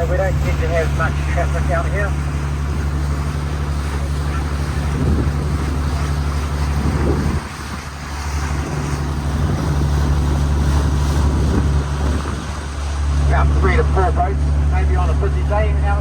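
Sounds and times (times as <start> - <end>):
boat engine running: 0.0 - 16.0
wind buffeting microphone: 0.0 - 16.0.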